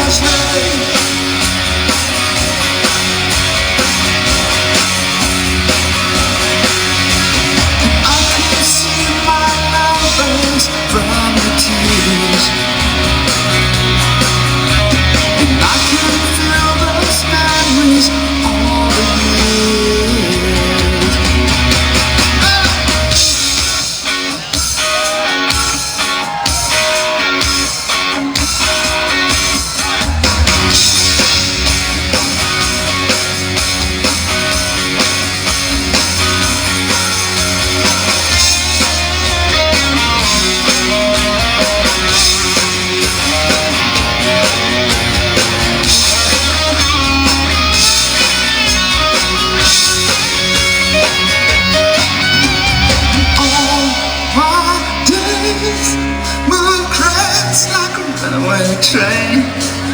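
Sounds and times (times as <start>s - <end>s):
person singing: 0.0s - 1.3s, 7.8s - 21.7s, 51.9s - 59.9s
lead guitar: 0.0s - 59.9s
rock band instrumental: 0.0s - 59.9s.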